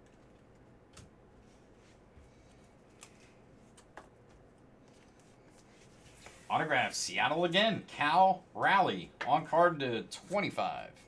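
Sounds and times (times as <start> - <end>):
trading cards being flipped: 0.1 - 6.5.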